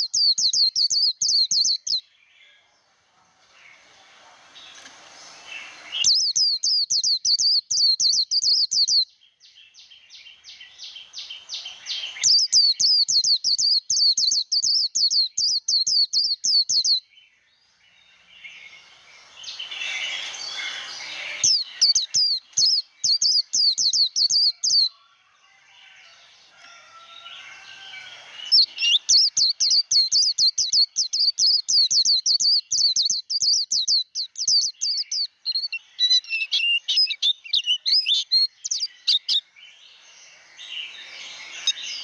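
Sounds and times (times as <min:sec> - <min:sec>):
soft bird twittering: 0:00.0 - 0:42.0
bird singing rapid sweeping notes: 0:04.6 - 0:09.0, 0:09.9 - 0:17.0, 0:17.6 - 0:24.9, 0:27.3 - 0:42.0.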